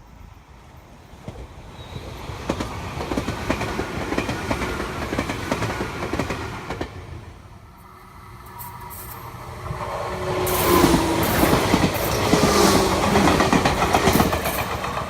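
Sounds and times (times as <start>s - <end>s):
electric train passing: 0.0s - 15.0s
wheels clacking over rail joints: 8.4s - 15.0s.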